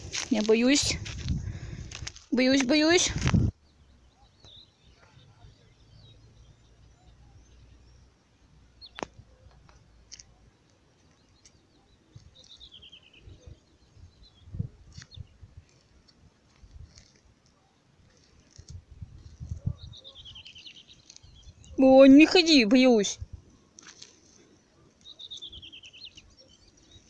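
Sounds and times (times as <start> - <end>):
songbird trilling: 19.7 - 23.0, 25.0 - 27.0.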